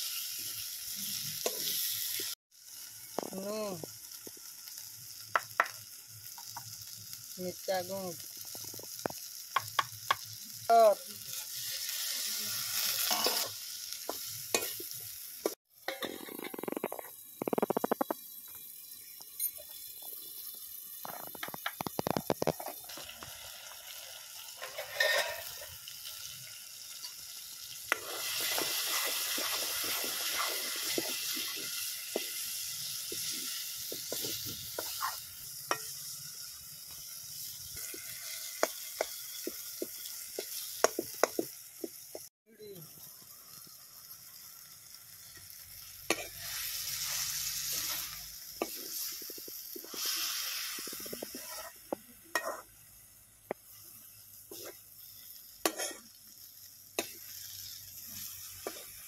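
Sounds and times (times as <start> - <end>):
steel spoon scraping a pan: 0.0 - 2.4, 11.3 - 14.9, 15.8 - 18.2, 24.4 - 41.4, 45.3 - 52.8, 53.7 - 56.2, 57.0 - 59.0
food sizzling in a pan: 0.0 - 59.0.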